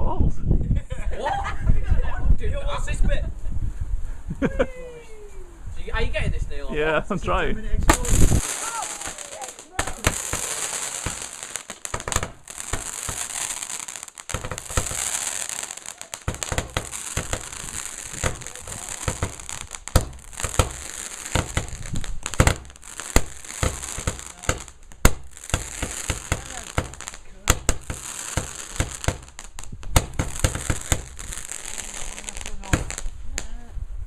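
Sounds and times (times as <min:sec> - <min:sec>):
steady hiss: 0:07.8 - 0:33.4
firework crackling and popping: 0:07.8 - 0:33.5.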